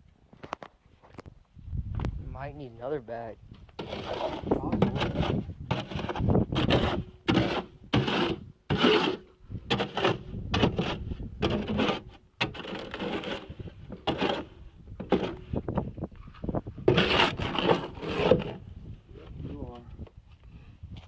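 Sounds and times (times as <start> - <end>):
tool scraping wet concrete: 3.8 - 15.8, 16.4 - 18.6.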